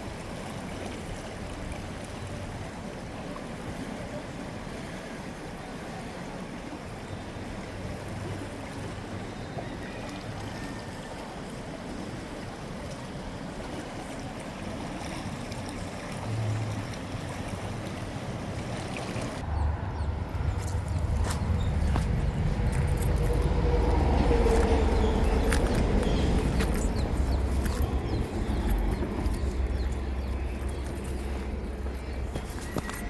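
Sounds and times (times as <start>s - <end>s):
river water rushing: 0.0s - 33.0s
low rumble: 19.4s - 32.9s.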